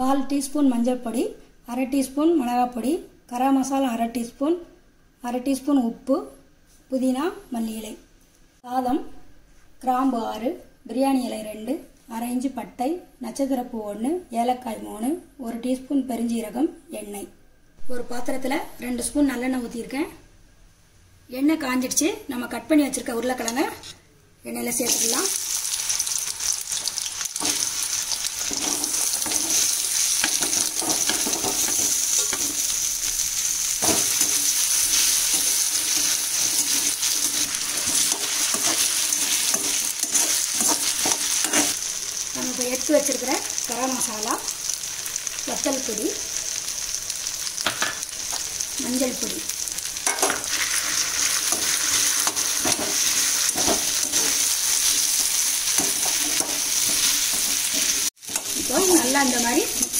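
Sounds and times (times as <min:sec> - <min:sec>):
potatoes sizzling in hot oil: 0:24.6 - 0:59.9
spoon stirring in a pan: 0:26.8 - 0:32.8, 0:33.8 - 0:41.9, 0:50.0 - 0:59.9.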